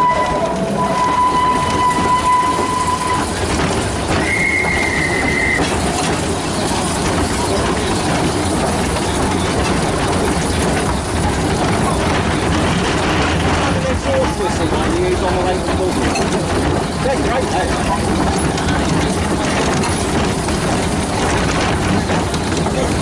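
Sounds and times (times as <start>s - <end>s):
train whistle tones: 0.0s - 3.3s, 4.2s - 5.7s
model trains running on track: 0.0s - 23.0s.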